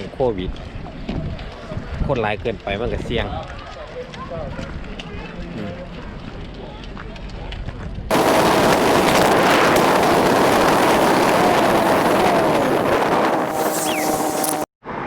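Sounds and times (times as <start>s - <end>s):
wind blowing across microphone: 0.0s - 6.6s, 7.5s - 14.7s
surf: 8.1s - 14.7s.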